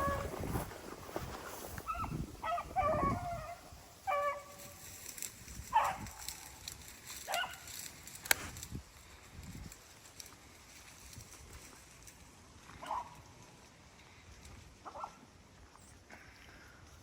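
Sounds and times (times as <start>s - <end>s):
hounds baying: 1.8s - 4.8s.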